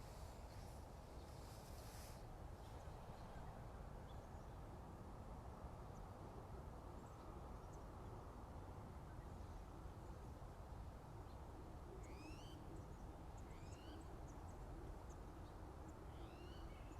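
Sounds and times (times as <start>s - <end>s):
outdoor background hiss: 0.0s - 16.9s
faint bird chirps: 11.2s - 16.9s.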